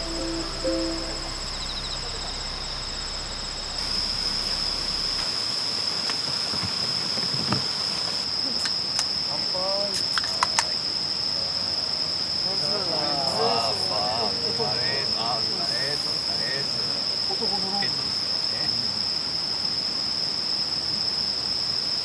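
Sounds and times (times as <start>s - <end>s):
crickets chirring: 0.0s - 22.0s
faint voice: 12.5s - 18.9s.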